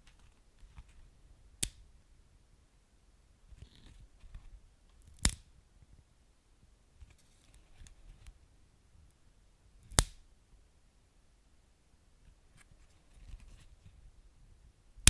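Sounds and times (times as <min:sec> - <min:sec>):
wood fire crackling: 0:05.1 - 0:05.4.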